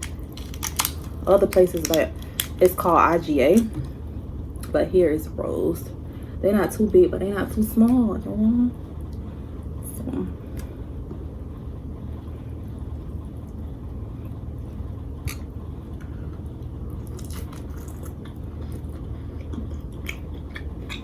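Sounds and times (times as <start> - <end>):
biting and chewing food: 0.0 - 2.6, 15.2 - 21.0
steady low hum: 0.0 - 21.0.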